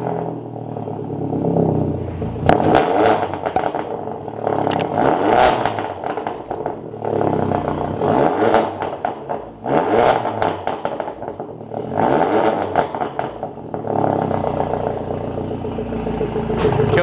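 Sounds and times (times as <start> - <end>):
car engine revving: 0.0 - 17.0
exhaust crackling pops: 2.4 - 4.0, 5.6 - 6.9, 10.2 - 11.6.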